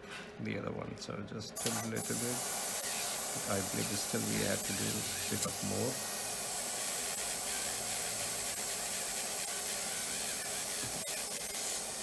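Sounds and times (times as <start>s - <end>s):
dental handpiece hissing: 1.6s - 12.0s.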